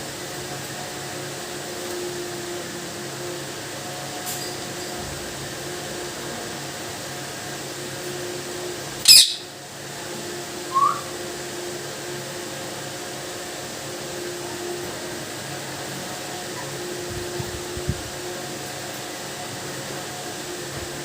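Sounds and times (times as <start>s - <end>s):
steady background hum: 0.0s - 21.0s
parrot rising whistle: 9.0s - 9.5s, 10.6s - 11.2s
parrot screech: 9.1s - 9.5s, 10.7s - 11.1s.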